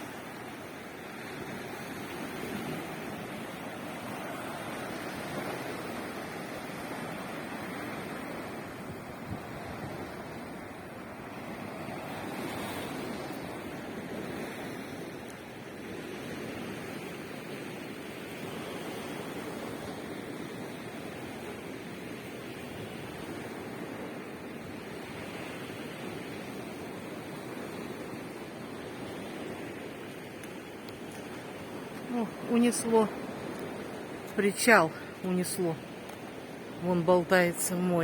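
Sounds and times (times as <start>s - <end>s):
sea waves breaking on shore: 0.0s - 38.0s
wind on microphone: 7.9s - 15.1s.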